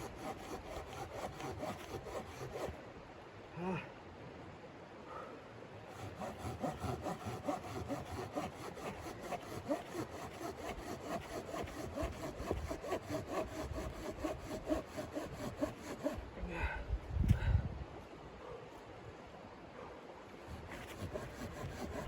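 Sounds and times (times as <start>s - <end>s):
hand saw cutting wood: 0.0s - 2.8s, 5.9s - 16.3s, 20.4s - 22.0s.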